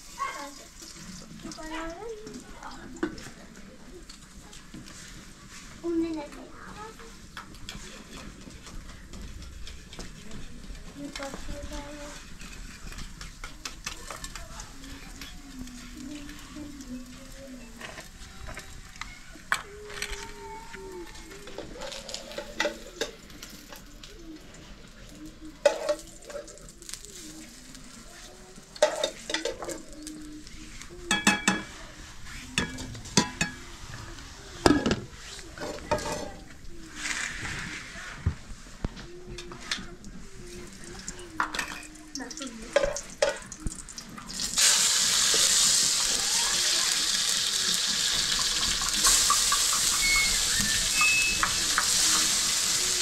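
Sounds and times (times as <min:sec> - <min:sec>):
loud sizzling in hot oil: 0:00.0 - 0:33.9, 0:40.5 - 0:53.0.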